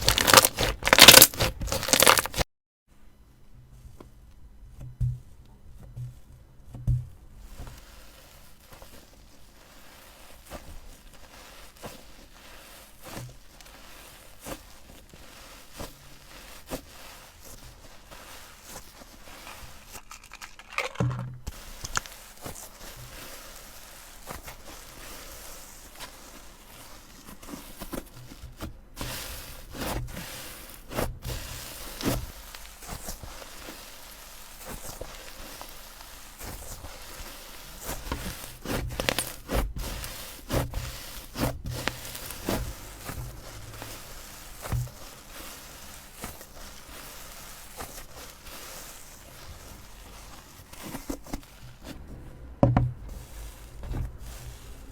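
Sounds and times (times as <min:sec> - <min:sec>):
slime squeezed by hand: 0:00.0 - 0:02.4.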